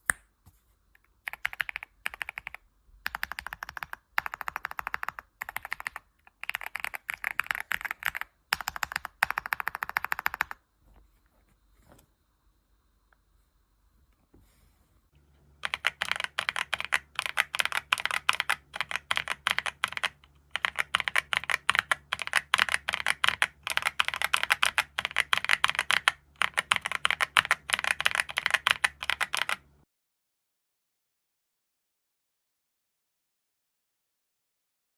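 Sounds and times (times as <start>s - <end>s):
mechanical keyboard typing: 1.3s - 10.6s, 15.6s - 29.7s.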